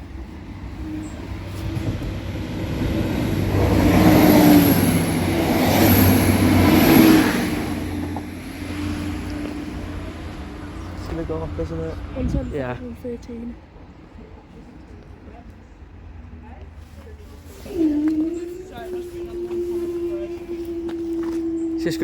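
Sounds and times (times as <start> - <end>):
engine hum: 0.0 - 13.7
train wheels on rails: 0.0 - 22.0.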